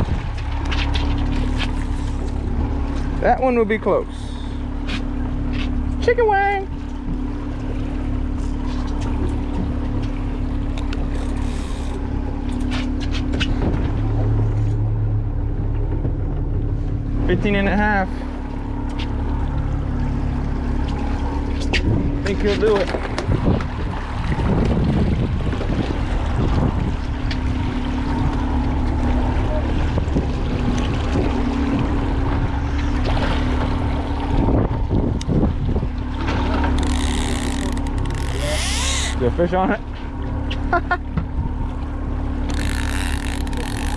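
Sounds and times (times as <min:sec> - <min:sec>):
wind buffeting microphone: 0:00.0 - 0:00.6, 0:21.6 - 0:27.4, 0:33.8 - 0:36.0
boat motor droning: 0:00.0 - 0:43.9
water washing along hull: 0:00.0 - 0:43.9
sharp clicks and knocks: 0:36.6 - 0:39.1.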